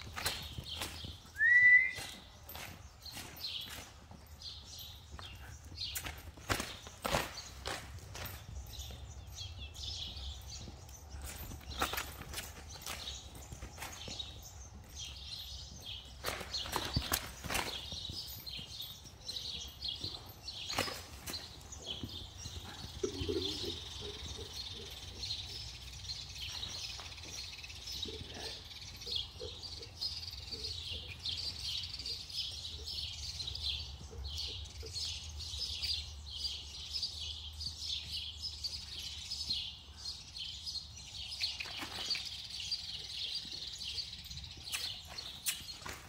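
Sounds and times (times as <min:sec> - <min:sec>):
horse hooves thudding in sand: 0:00.0 - 0:46.0
small birds chirping: 0:00.0 - 0:46.0.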